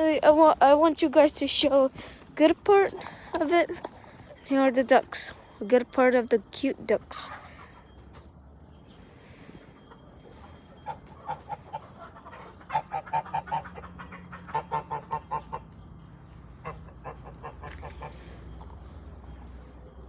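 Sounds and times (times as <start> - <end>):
ducks quacking: 10.9 - 15.6.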